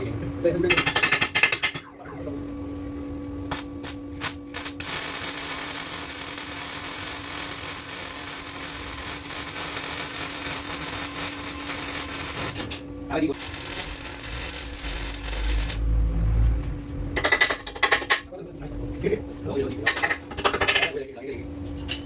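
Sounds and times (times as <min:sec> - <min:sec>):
welder welding: 0:03.5 - 0:16.0.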